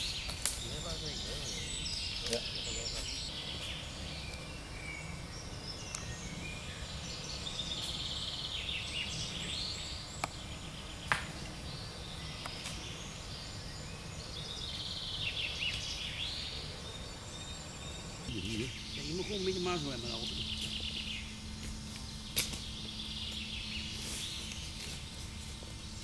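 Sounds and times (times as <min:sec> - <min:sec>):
birds singing and chirping: 0:00.0 - 0:26.0.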